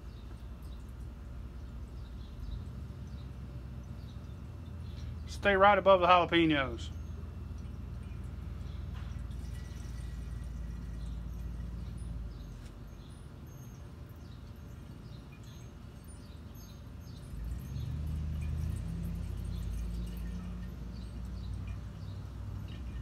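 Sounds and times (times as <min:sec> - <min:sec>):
small birds chirping: 0:00.0 - 0:05.4, 0:06.8 - 0:23.0
low steady hum: 0:00.0 - 0:23.0.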